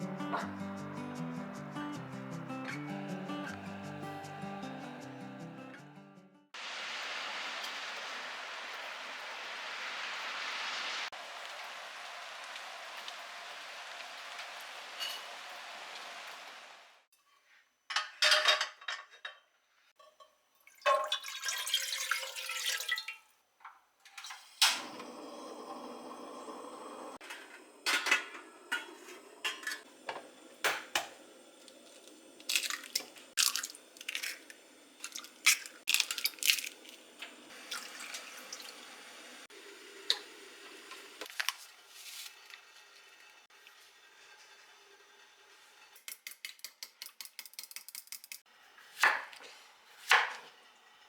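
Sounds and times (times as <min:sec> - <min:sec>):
running water: 0:06.6 - 0:17.1, 0:24.8 - 0:41.6.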